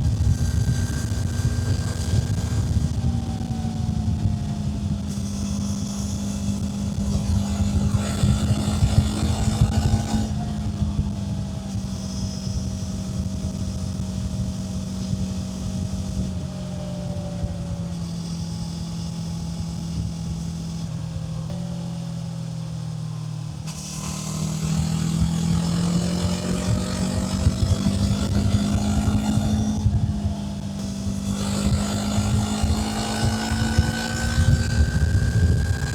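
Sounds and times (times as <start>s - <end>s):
motorcycle engine running: 0.0s - 35.9s
wind rush: 24.1s - 35.9s.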